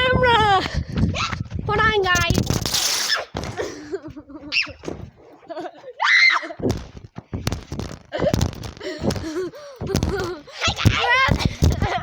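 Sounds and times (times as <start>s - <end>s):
knocks and thumps: 0.1s - 5.4s, 6.6s - 12.0s
child squealing: 6.0s - 6.6s.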